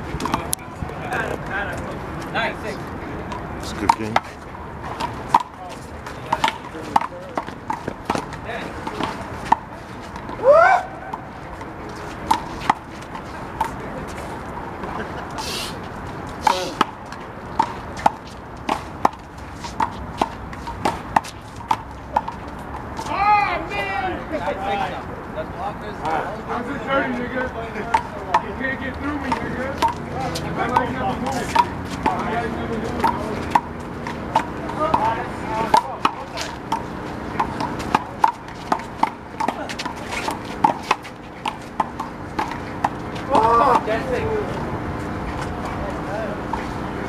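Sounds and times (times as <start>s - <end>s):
handball slaps: 30.6s - 43.9s.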